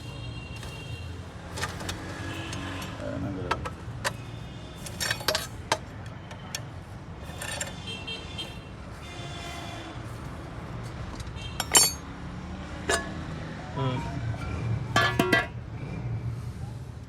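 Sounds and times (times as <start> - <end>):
metal tools clinking: 4.8 - 5.9, 7.2 - 7.8, 11.6 - 12.1, 12.8 - 13.3, 15.0 - 15.5
sharp metallic clank: 11.6 - 12.0, 12.9 - 13.3, 15.0 - 15.6.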